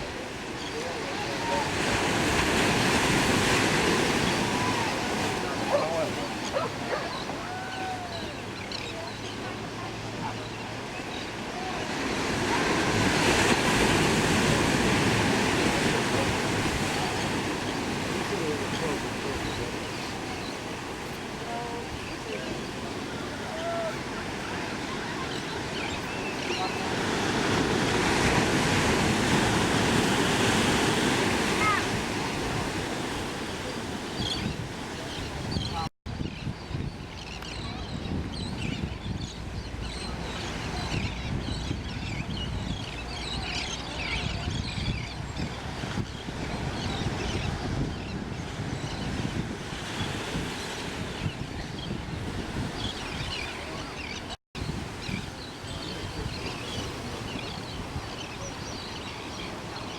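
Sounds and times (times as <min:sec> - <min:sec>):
ocean surf washing: 0:00.0 - 0:59.9
wind buffeting microphone: 0:26.6 - 0:58.8.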